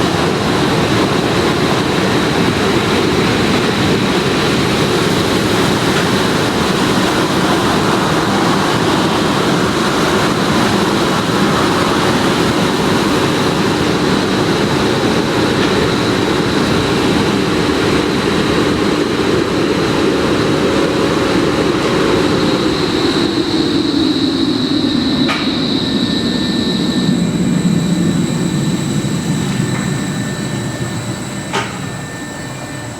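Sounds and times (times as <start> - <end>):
air-dryer blowers whistling: 0.0 - 32.9.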